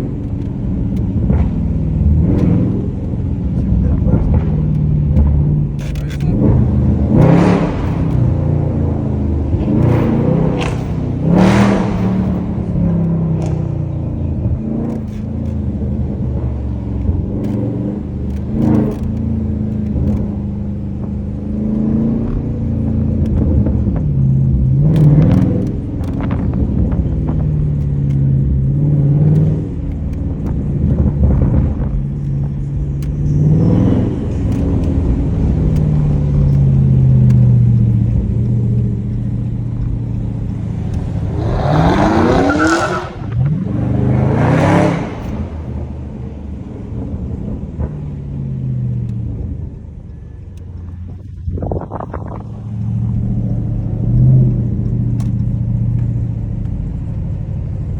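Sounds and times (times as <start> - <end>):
car engine revving: 0.0 - 57.9.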